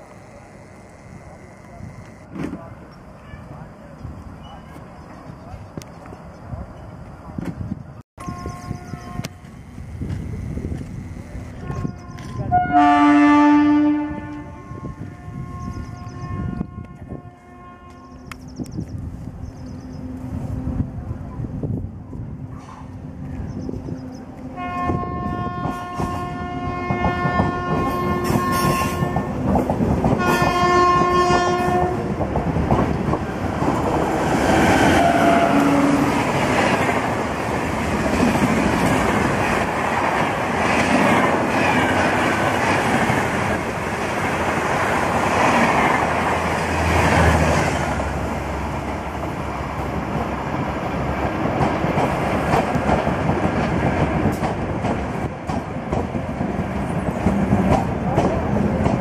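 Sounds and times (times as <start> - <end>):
train coaches roaring past: 0.0 - 59.0
locomotive horn blasts: 8.2 - 18.2, 24.5 - 29.4, 30.2 - 32.1, 34.9 - 36.2
wheels clacking over rail joints: 49.7 - 59.0.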